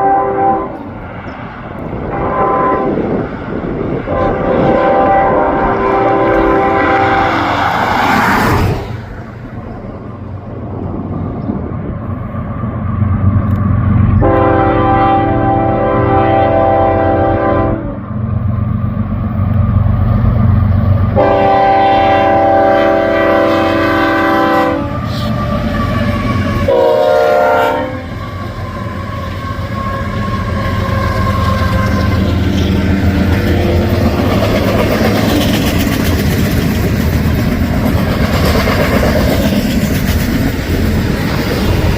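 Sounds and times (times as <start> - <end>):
locomotive horn blasts: 0.0 - 0.9, 2.0 - 3.1, 4.1 - 7.7, 14.2 - 18.1, 21.1 - 25.5, 26.6 - 33.8
diesel locomotive rumble: 0.0 - 41.9.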